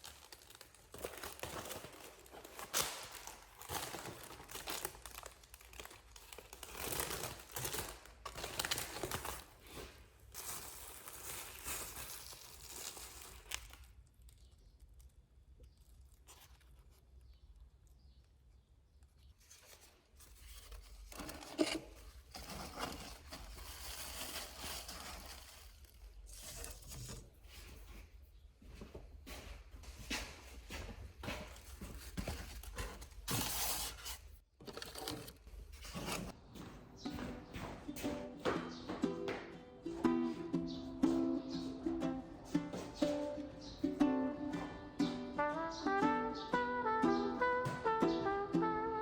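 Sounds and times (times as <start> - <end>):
packaging crinkling and tearing: 0.0 - 17.0, 19.4 - 27.3.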